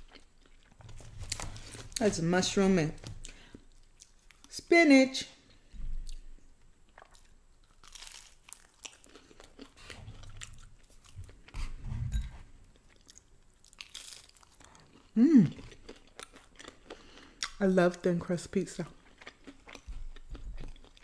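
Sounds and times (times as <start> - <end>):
crunchy pizza chewing: 6.9 - 11.8, 12.8 - 17.6, 18.9 - 21.0
person humming mm: 15.2 - 15.6.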